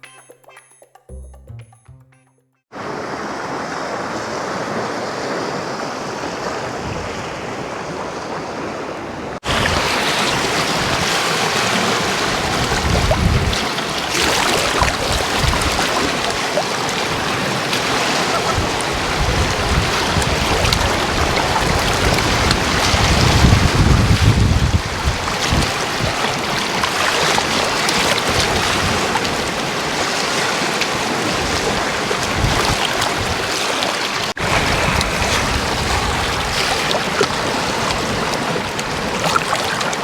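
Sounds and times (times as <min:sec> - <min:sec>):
sea waves: 0:02.7 - 0:40.0
wind buffeting microphone: 0:06.2 - 0:30.1, 0:31.0 - 0:33.6, 0:34.4 - 0:39.2.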